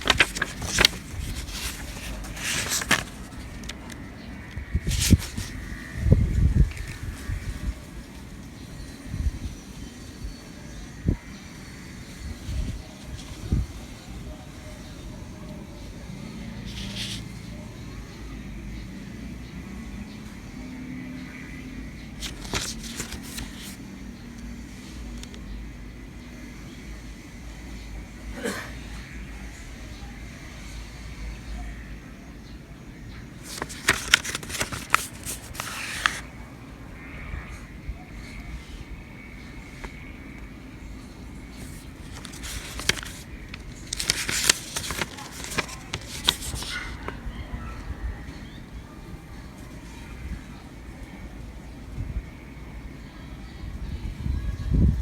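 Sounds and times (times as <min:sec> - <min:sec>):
packaging clicks and rustles: 0:00.0 - 0:04.0, 0:22.2 - 0:23.8, 0:33.4 - 0:36.2, 0:41.6 - 0:47.1.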